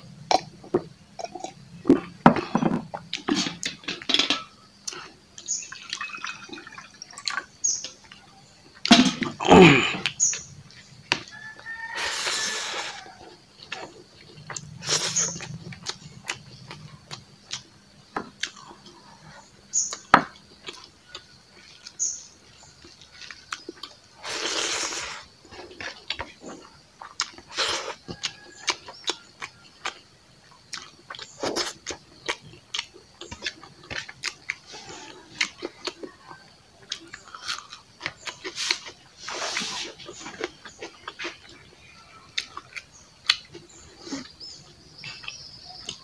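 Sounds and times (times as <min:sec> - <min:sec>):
breathy hisses: 0:11.9 - 0:13.2, 0:24.2 - 0:25.3
wet chewing and lip smacks: 0:13.6 - 0:19.0, 0:25.6 - 0:41.7, 0:42.3 - 0:46.0.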